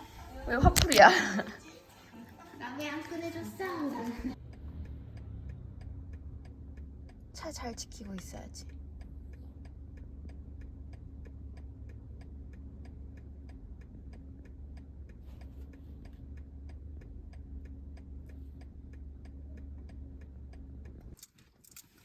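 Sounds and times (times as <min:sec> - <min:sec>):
car engine idling: 0:00.0 - 0:21.2
car indicator ticking: 0:04.3 - 0:21.2.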